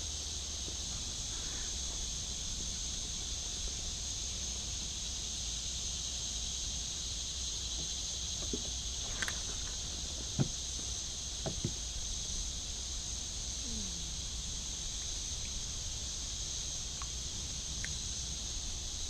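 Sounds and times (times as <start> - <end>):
insects chirping drone: 0.0 - 19.0
faint ticks: 17.0 - 17.2, 17.8 - 18.0.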